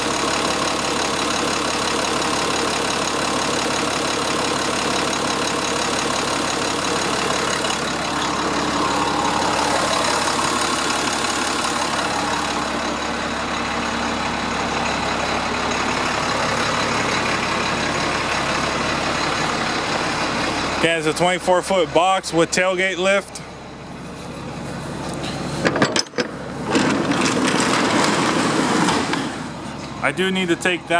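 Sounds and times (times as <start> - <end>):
diesel engine idling: 0.0 - 30.9.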